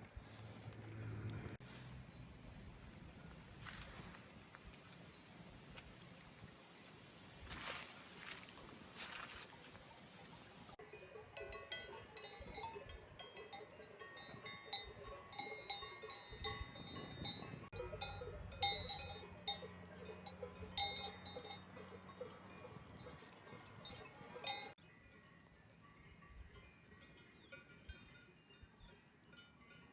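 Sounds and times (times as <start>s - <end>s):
cowbells clanking: 10.2s - 24.8s, 26.0s - 29.9s.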